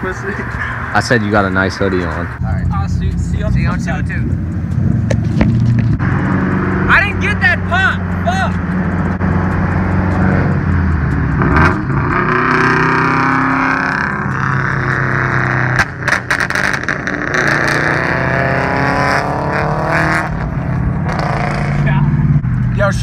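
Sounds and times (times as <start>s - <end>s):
car engine accelerating: 0.3s - 23.0s
exhaust pops and clicks: 3.0s - 6.1s, 14.0s - 17.8s.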